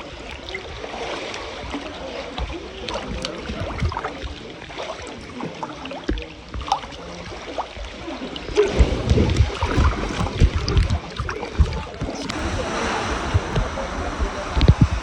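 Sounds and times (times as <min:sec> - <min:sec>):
water splashing and sloshing: 0:00.0 - 0:15.0
low thumps: 0:08.6 - 0:15.0.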